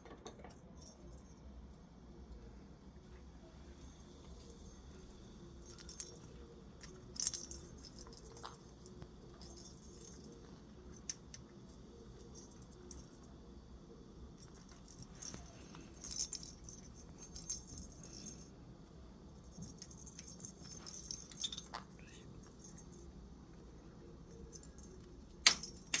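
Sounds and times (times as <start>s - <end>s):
small objects jingling and rattling: 3.8s - 11.2s, 14.3s - 18.6s, 19.4s - 23.1s.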